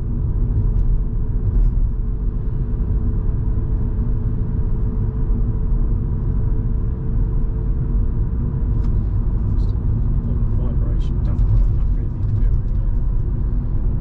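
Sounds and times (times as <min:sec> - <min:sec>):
car engine hum: 0:00.0 - 0:14.0
tyre and road rumble: 0:08.7 - 0:14.0.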